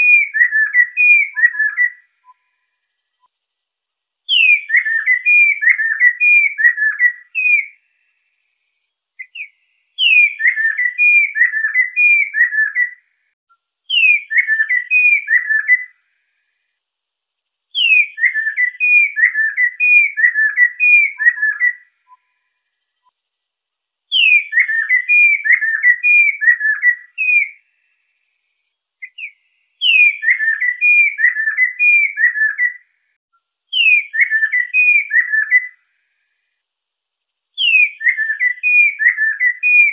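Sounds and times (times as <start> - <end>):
laughingthrush whistling song: 0.0 - 2.6, 4.3 - 7.8, 9.2 - 13.0, 13.9 - 15.9, 17.8 - 22.4, 24.1 - 27.6, 29.0 - 32.9, 33.8 - 35.8, 37.6 - 39.9.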